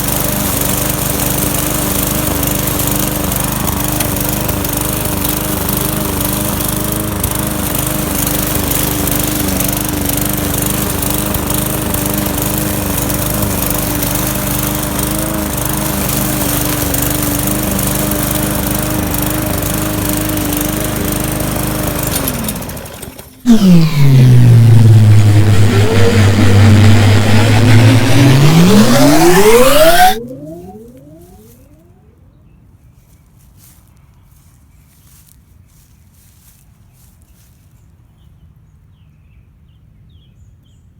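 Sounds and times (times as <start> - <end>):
lawn mower engine running: 0.0 - 32.0
siren-like falling and rising tone: 23.5 - 32.3.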